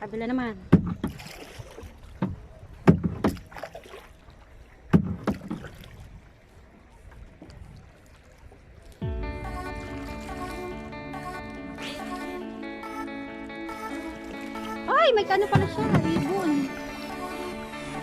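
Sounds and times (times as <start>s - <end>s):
kayak paddle strokes splashing: 0.7s - 18.0s
background music: 9.0s - 18.0s.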